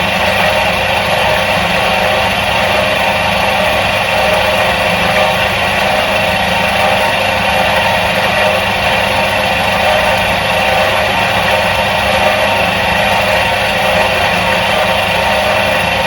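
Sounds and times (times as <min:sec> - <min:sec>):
washing machine motor humming: 0:00.0 - 0:16.0.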